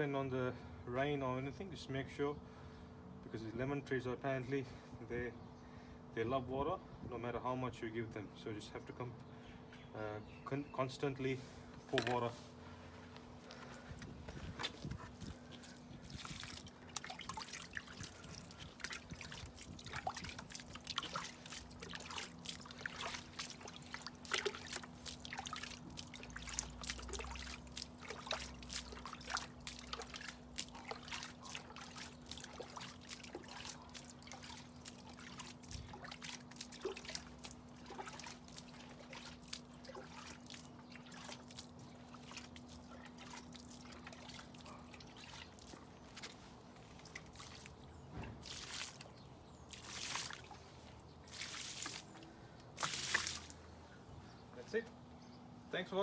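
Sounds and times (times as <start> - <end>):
water trickling onto soil: 13.4 - 53.7.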